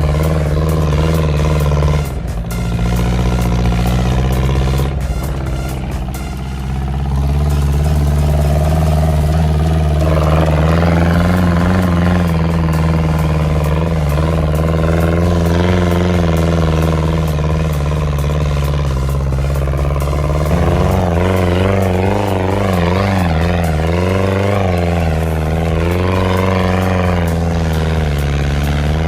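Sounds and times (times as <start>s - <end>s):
dune buggy engine revving: 0.0s - 29.0s.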